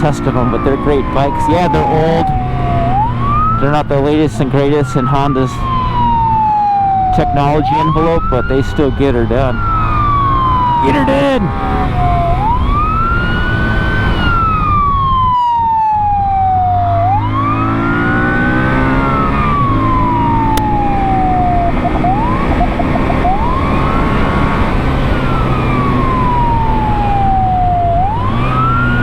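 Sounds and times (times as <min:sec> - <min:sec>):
police siren wailing: 0:00.0 - 0:29.0
siren yelps: 0:00.0 - 0:29.0
motorcycle engine running: 0:19.8 - 0:25.7.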